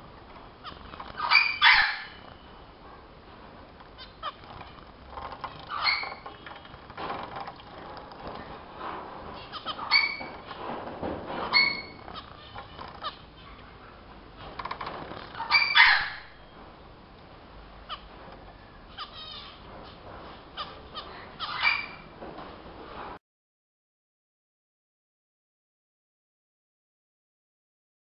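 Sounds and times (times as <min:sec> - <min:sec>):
rustling and fluttering: 0:00.2 - 0:02.5, 0:03.3 - 0:13.6, 0:14.4 - 0:15.8
finches giving nasal calls: 0:00.6 - 0:02.4, 0:04.0 - 0:06.6, 0:18.9 - 0:20.0, 0:20.6 - 0:22.0.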